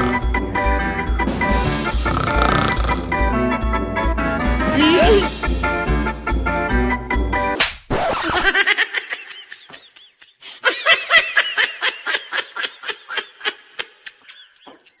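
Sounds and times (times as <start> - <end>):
high-pitched laughter: 8.0 - 15.0.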